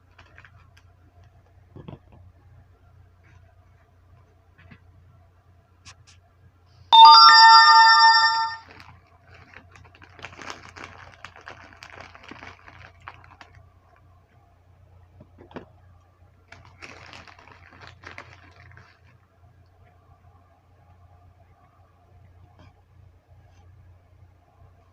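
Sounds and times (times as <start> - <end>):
loud electronic chime: 7.0 - 8.6.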